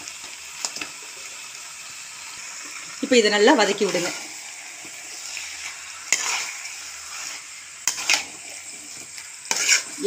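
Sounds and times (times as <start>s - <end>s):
chicken and onions sizzling: 0.0s - 10.0s
metal ladle scraping a pot: 5.2s - 8.6s, 9.5s - 10.0s.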